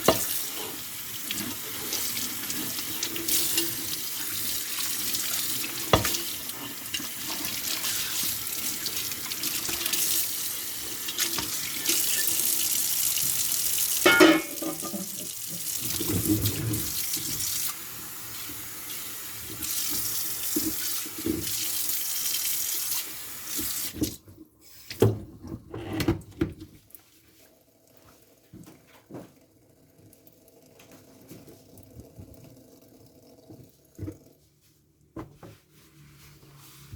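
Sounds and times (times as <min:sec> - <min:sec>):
tap running into sink: 0:05.7 - 0:06.3
dishes clinking: 0:14.0 - 0:15.3.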